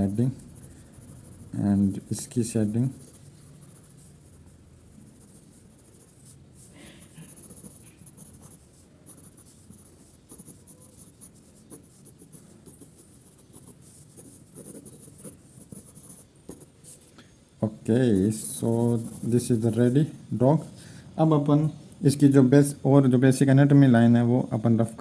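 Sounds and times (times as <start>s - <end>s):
drawing tool scratching paper: 0.0s - 4.4s, 5.0s - 17.0s, 18.0s - 20.0s.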